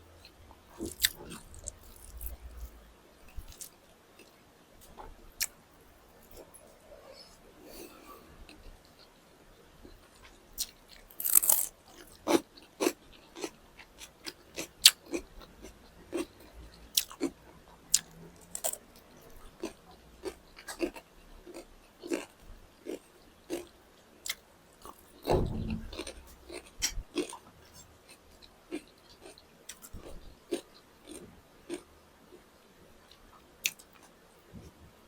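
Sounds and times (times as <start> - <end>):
person chewing crunchy food: 0.2 - 4.4, 10.2 - 18.8, 19.6 - 31.9.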